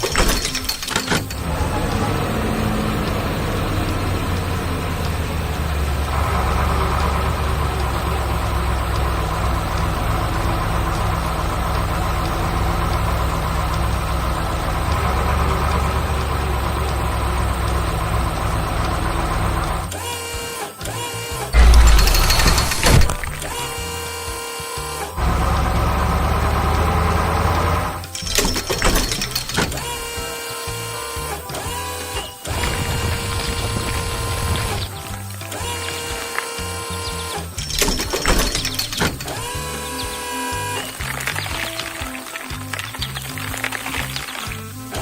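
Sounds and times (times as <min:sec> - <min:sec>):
heavy machine engine rumbling: 0:00.0 - 0:20.0, 0:21.5 - 0:24.3, 0:25.0 - 0:45.0
loud low thump: 0:21.6 - 0:23.6.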